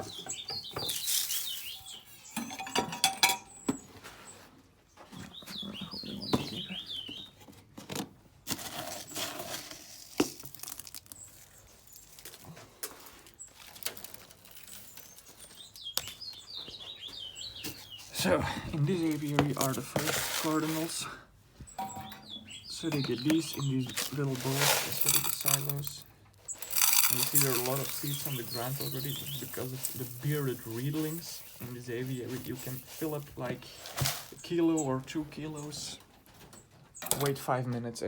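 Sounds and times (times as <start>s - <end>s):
birds chirping: 0.0s - 7.6s, 14.5s - 38.0s
clicks and rustling: 21.7s - 34.4s.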